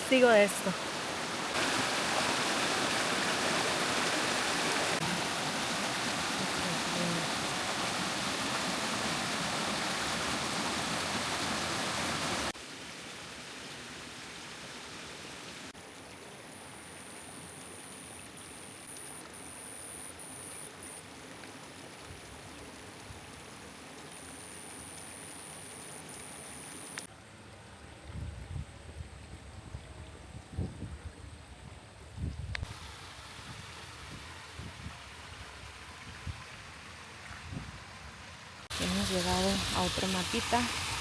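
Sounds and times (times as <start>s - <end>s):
heavy rain: 0.0s - 12.7s
running water: 0.0s - 19.5s, 32.6s - 41.0s.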